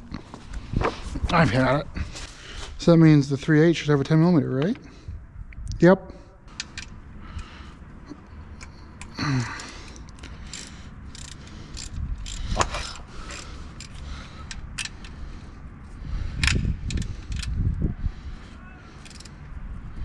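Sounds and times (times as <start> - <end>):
ratchet wrench clicking: 6.5 - 7.0, 8.6 - 15.2, 16.4 - 17.6, 19.0 - 19.4
metal tools clinking: 8.6 - 15.1, 19.0 - 19.4.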